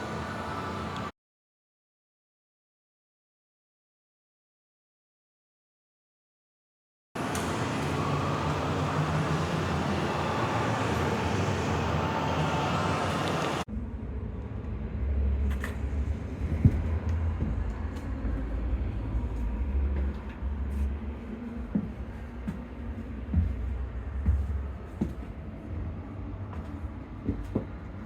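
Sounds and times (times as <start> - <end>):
dense background noise with hum: 0.0 - 1.1, 7.2 - 28.0.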